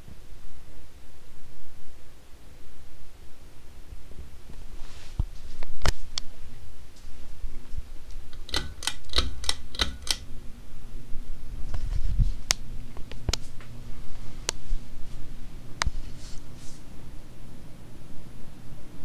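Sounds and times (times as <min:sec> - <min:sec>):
ceiling fan motor hum: 0:00.0 - 0:19.0
sharp clicks: 0:08.3 - 0:10.3.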